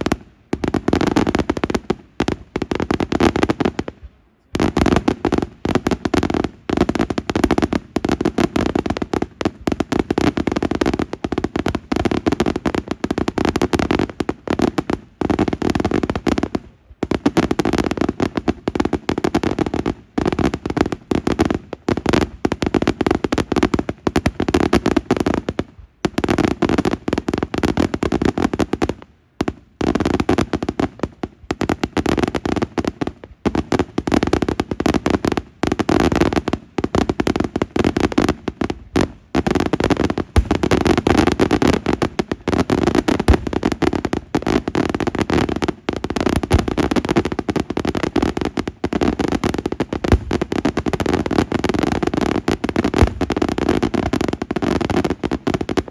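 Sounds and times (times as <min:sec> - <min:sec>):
fireworks bangs and crackle: 0:00.0 - 0:55.9.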